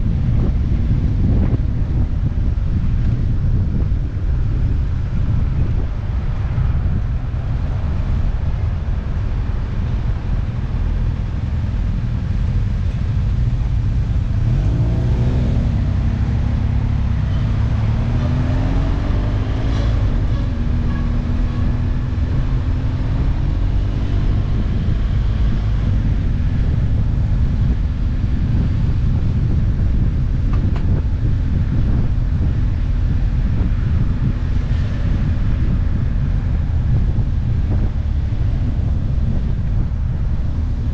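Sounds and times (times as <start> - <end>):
wind rumble and road noise: 0.0 - 40.9
motorcycle engine revving: 14.2 - 27.7.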